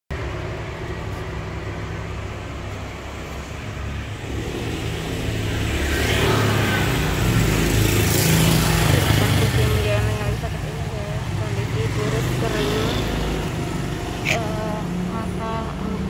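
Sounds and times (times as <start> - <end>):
vehicle engine humming: 0.1 - 16.0.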